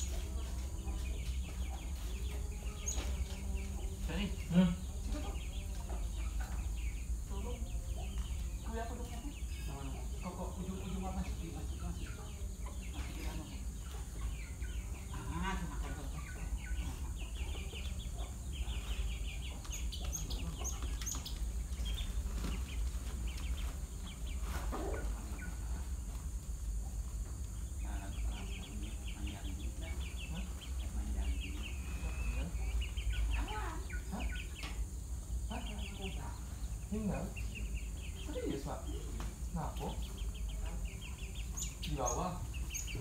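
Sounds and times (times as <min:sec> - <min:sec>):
sparrows chirping: 0:00.0 - 0:43.0
steady low hum: 0:00.0 - 0:43.0.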